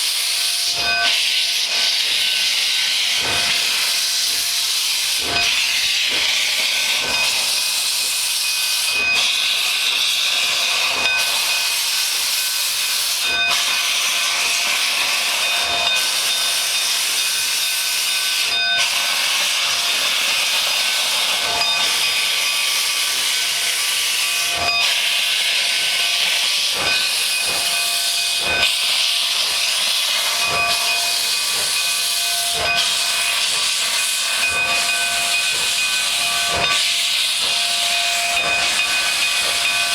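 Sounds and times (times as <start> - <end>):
steam locomotive hissing steam: 0.0 - 39.9.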